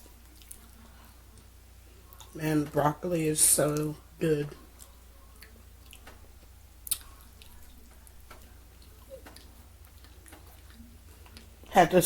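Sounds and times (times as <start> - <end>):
person chewing food: 0.0 - 2.4, 4.7 - 11.7.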